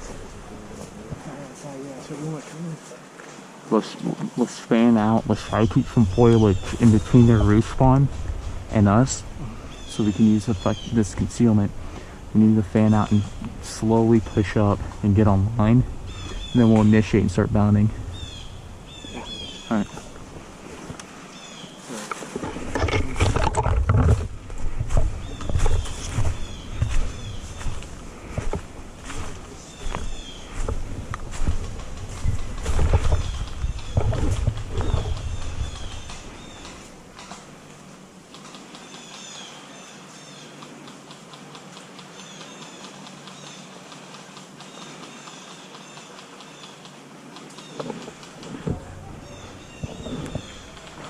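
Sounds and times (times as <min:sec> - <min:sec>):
steady hiss: 0:00.0 - 0:23.3, 0:24.2 - 0:51.0
rustling and crunching through brush: 0:00.0 - 0:51.0
footsteps on dry leaves and twigs: 0:16.0 - 0:37.8, 0:48.0 - 0:51.0.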